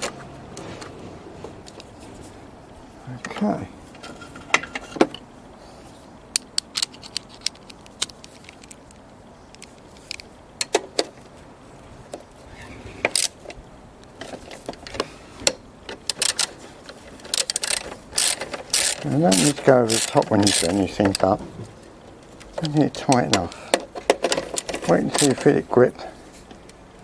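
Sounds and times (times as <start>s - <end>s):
metal tools clicking and clinking: 15.9s - 21.4s, 22.4s - 26.1s.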